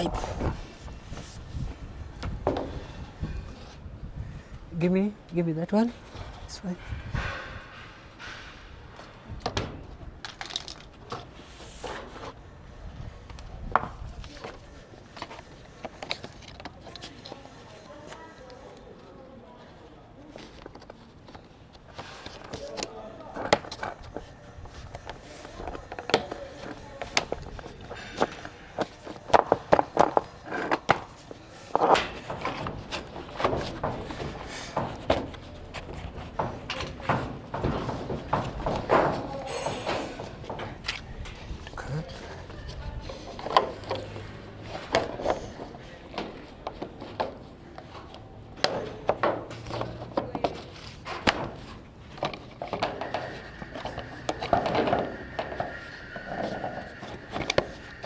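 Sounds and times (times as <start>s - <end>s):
plumbing pipes knocking and clattering: 23.5s - 42.6s.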